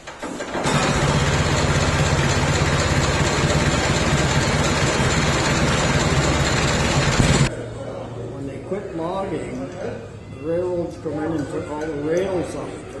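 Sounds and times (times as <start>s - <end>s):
tractor engine running: 0.0s - 7.5s.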